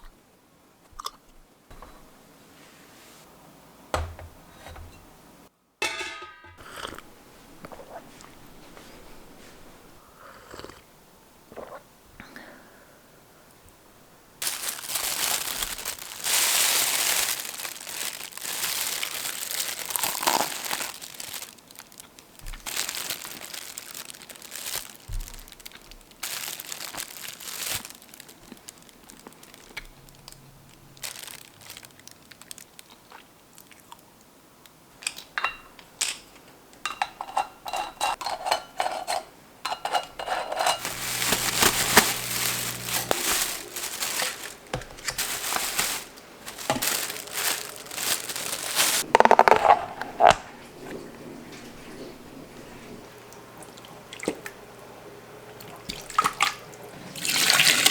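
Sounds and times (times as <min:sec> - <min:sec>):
crinkling and rustling: 0:14.4 - 0:32.9, 0:39.9 - 0:53.1.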